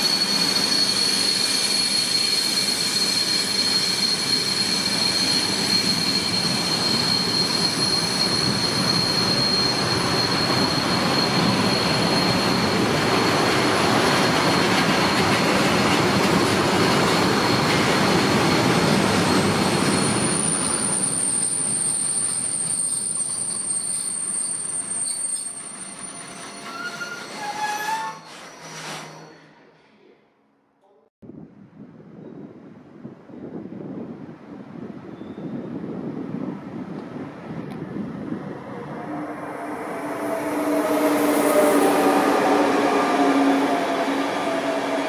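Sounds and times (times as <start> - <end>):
train wheels rolling on rails: 0.0 - 29.2
high wheel squeal: 0.0 - 29.7.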